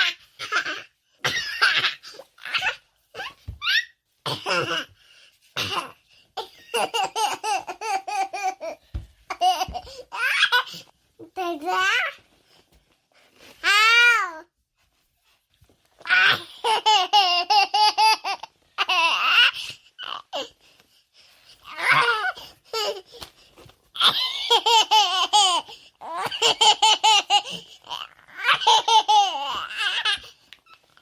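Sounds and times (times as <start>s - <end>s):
baby laughing: 6.4s - 10.8s, 16.1s - 19.6s, 24.0s - 30.3s.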